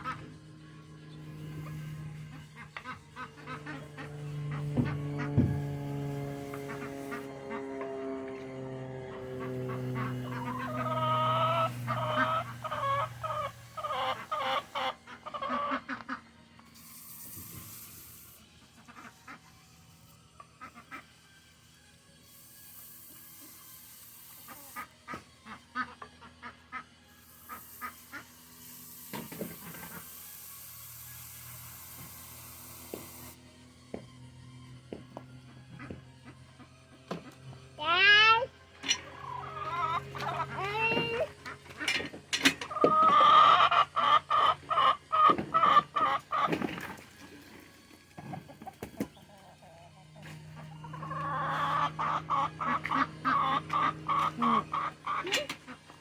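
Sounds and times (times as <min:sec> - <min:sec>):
birds calling: 0:00.0 - 0:08.0, 0:08.9 - 0:16.3, 0:38.8 - 0:47.5, 0:48.2 - 0:56.0.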